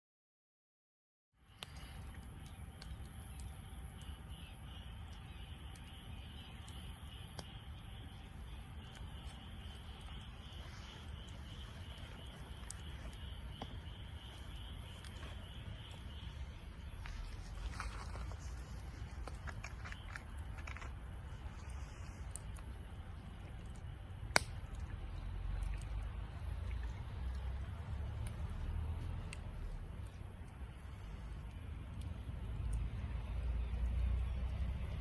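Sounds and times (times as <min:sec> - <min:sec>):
insect chirring: 0:01.4 - 0:35.0
wood fire crackling and popping: 0:10.9 - 0:26.2.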